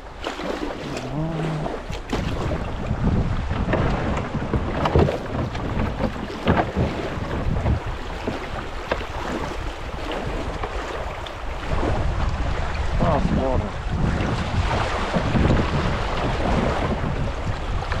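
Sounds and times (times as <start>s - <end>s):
water rushing and splashing: 0.0s - 18.0s
wind rumbling on microphone: 0.0s - 18.0s
sharp splashes or knocks: 0.2s - 11.9s.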